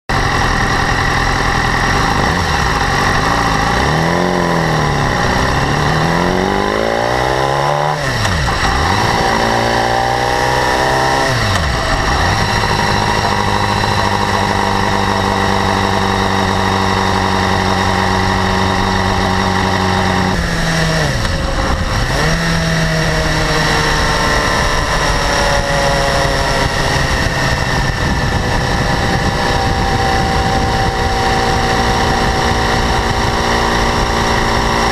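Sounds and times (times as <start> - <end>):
motorcycle engine idling: 0.1 - 6.5, 10.7 - 22.7.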